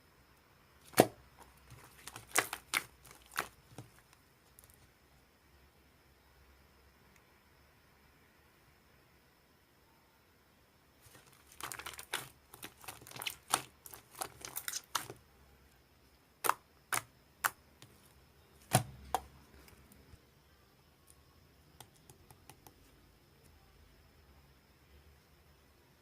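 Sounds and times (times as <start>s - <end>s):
sharp slime pops: 0.8s - 4.0s, 11.1s - 15.2s, 16.4s - 17.6s, 18.6s - 19.3s
slime crackling and popping: 0.8s - 4.7s, 11.0s - 15.2s, 16.4s - 17.6s, 18.7s - 19.3s.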